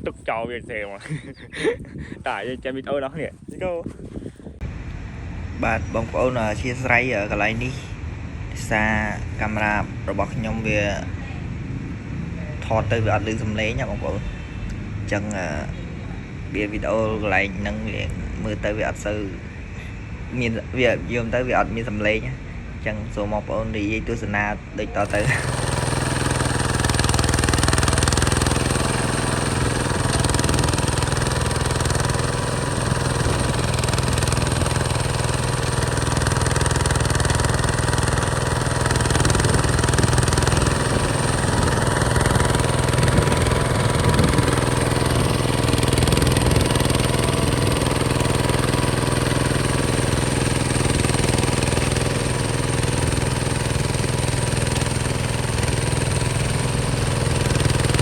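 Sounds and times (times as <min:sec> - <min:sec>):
walking tractor diesel engine: 0:24.9 - 0:58.0.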